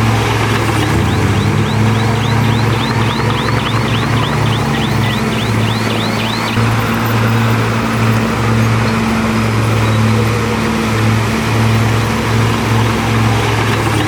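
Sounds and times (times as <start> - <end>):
heavy diesel engine droning: 0.0 - 14.0.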